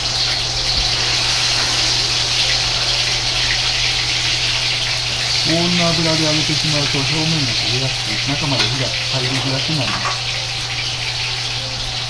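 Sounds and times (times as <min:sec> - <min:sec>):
food deep-frying in oil: 0:00.0 - 0:12.0.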